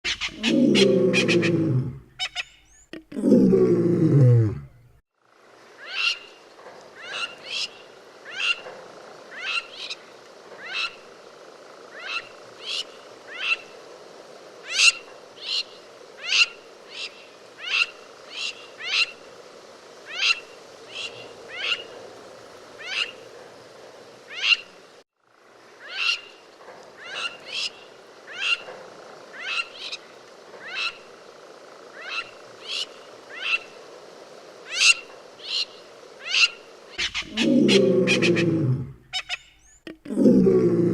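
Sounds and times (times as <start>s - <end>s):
lapwing calling: 0.1s - 3.8s, 5.8s - 6.4s, 7.0s - 8.7s, 9.3s - 10.0s, 10.6s - 11.1s, 11.9s - 13.7s, 14.7s - 19.2s, 20.1s - 22.0s, 22.7s - 23.3s, 25.8s - 26.4s, 27.0s - 28.7s, 29.3s - 31.2s, 31.9s - 33.8s, 34.7s - 40.9s.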